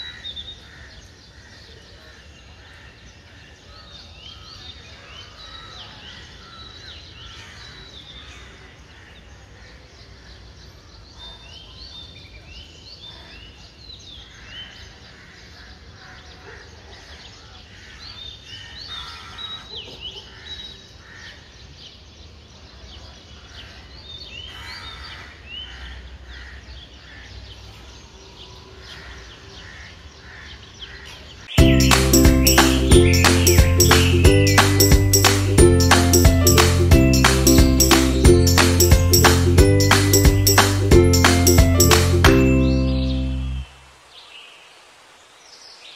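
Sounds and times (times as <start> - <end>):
low outdoor background noise: 0.0 - 31.6, 42.6 - 45.9
small birds chirping: 30.8 - 44.6
loud music: 31.6 - 43.7.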